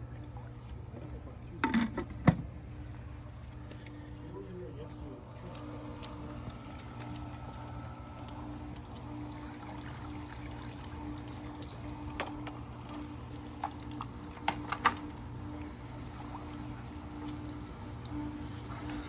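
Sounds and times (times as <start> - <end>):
pool pump hum: 0.0 - 19.0
water trickling from hose: 5.2 - 19.0.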